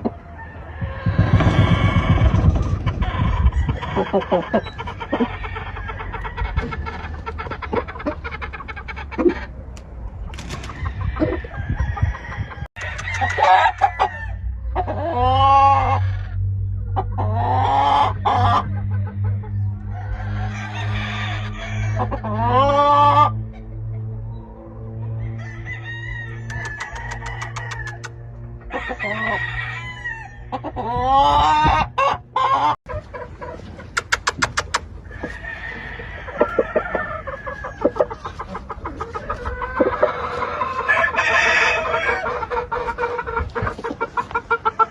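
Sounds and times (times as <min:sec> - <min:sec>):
roosters clucking: 0:00.0 - 0:44.9
rooster crowing loudly: 0:10.8 - 0:14.5, 0:20.1 - 0:22.1, 0:25.2 - 0:28.1, 0:28.7 - 0:30.6, 0:40.4 - 0:42.4
sharp clicks: 0:33.9 - 0:34.9.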